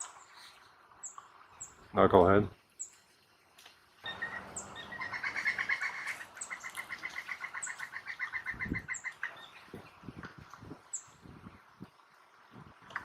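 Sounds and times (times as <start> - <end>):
woodpecker rapid calls: 4.1 - 9.7.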